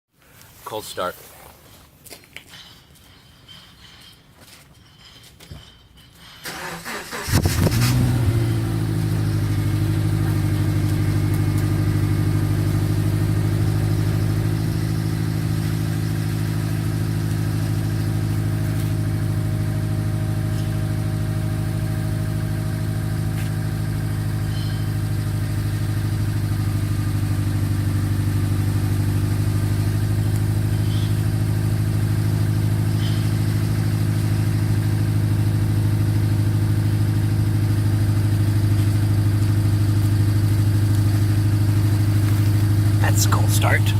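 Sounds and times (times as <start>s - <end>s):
car engine cold start idling: 6.4s - 43.9s.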